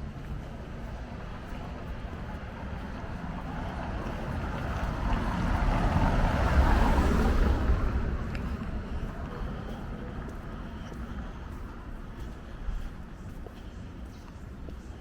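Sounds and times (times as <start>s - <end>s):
vehicle passing close by: 1.9s - 9.3s.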